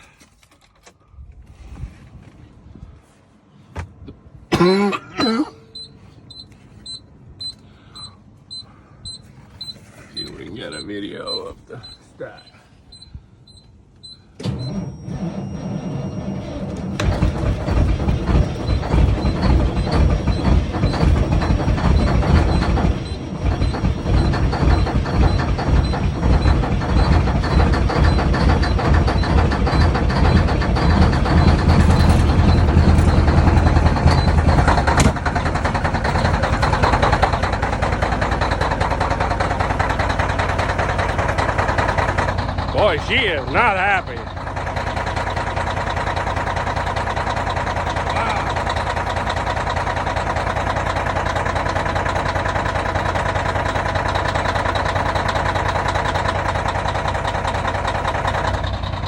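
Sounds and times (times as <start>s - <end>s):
diesel engine running rough: 4.2s - 59.0s
starter motor cranking: 5.7s - 59.0s.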